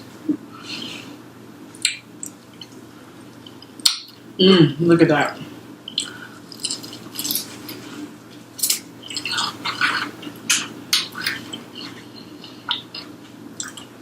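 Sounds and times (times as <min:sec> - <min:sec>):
wet mouth clicks: 0:01.8 - 0:02.8, 0:05.9 - 0:07.3, 0:08.6 - 0:13.9
crunchy chewing: 0:05.9 - 0:08.0, 0:08.6 - 0:13.9.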